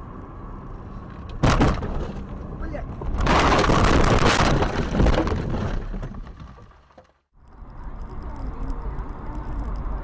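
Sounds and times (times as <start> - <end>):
road traffic noise: 0.0 - 3.4, 6.6 - 10.0
vehicle collision crash: 1.4 - 2.3, 3.0 - 7.2.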